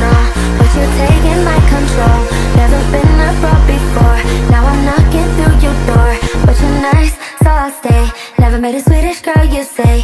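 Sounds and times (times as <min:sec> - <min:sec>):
bending vocal or synth melody: 0:00.0 - 0:07.7
pop music with heavy bass beat: 0:00.0 - 0:10.0.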